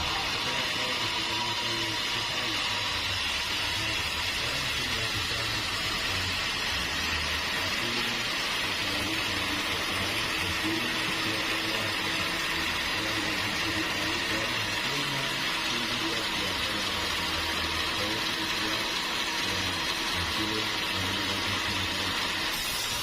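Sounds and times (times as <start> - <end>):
sawmill machinery running: 0.0 - 23.0.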